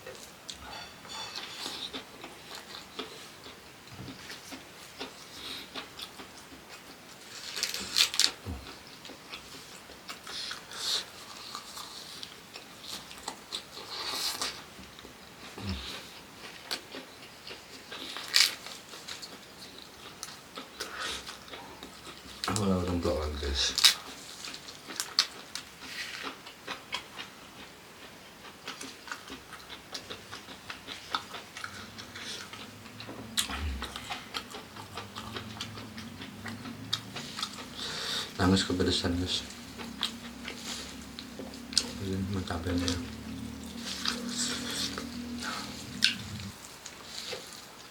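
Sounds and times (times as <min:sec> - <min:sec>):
person chewing food: 0:00.0 - 0:23.0, 0:23.7 - 0:47.9.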